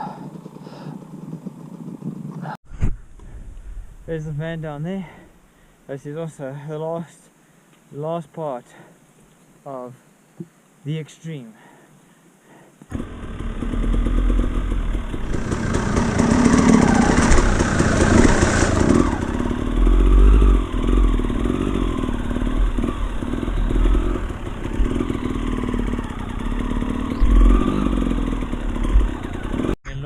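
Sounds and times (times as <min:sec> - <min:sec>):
dirt bike engine revving: 0:12.9 - 0:29.8.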